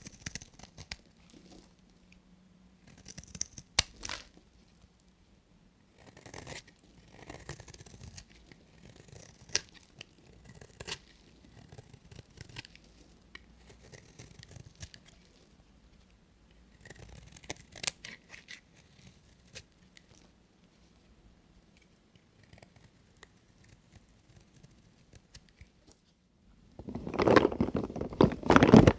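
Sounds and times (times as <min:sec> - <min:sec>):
knife cutting bar soap: 0:06.0 - 0:15.4, 0:16.7 - 0:20.2.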